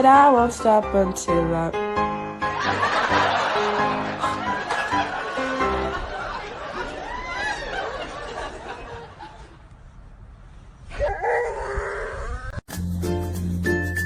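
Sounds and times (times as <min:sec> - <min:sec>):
people laughing: 0:02.5 - 0:09.6.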